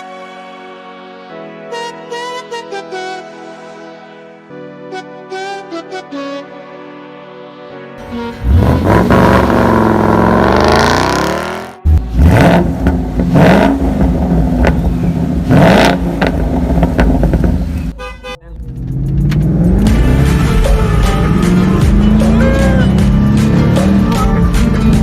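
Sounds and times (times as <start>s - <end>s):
car engine revving: 8.0s - 17.9s, 18.6s - 25.0s.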